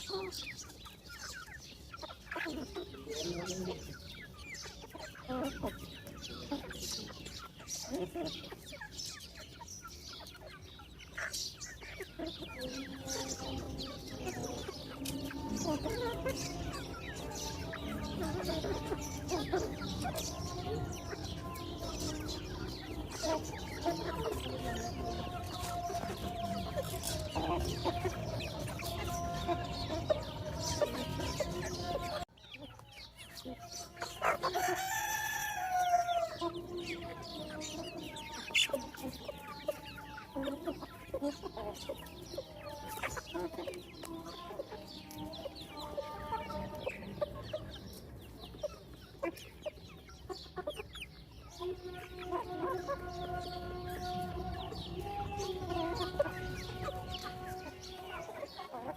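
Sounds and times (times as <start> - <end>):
chickens clucking: 0.0 - 58.9
rooster crowing: 34.4 - 36.5.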